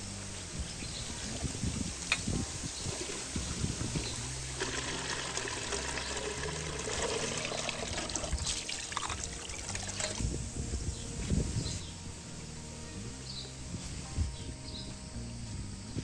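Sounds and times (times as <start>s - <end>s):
water trickling and pouring: 0.7s - 10.2s.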